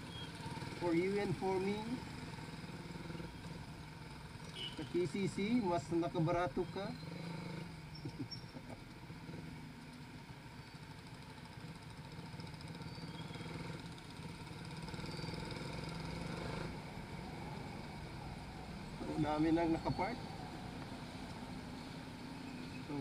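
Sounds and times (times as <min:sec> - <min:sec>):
motorcycle engine running: 0:06.6 - 0:19.4.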